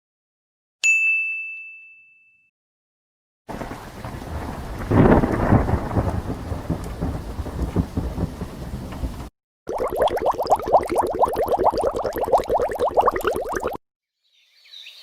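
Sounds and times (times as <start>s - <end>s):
loud thunder: 3.5s - 9.3s
steady rain: 3.5s - 9.3s.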